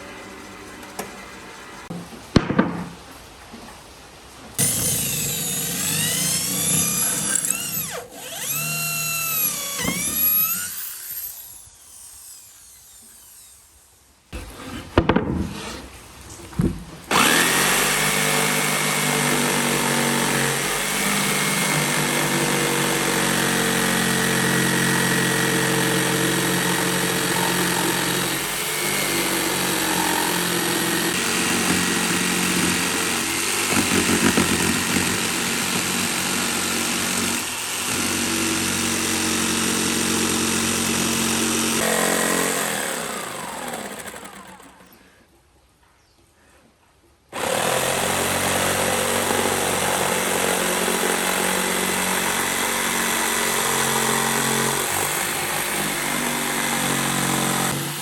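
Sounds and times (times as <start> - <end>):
knocks: 1.9 - 3.0
power tool running: 4.6 - 13.8, 17.1 - 45.0, 47.4 - 58.0.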